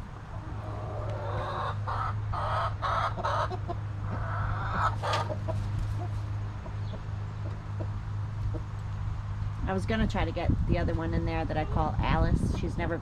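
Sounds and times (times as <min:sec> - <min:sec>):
steady low hum: 0:00.0 - 0:13.0
hen clucking: 0:00.3 - 0:08.8.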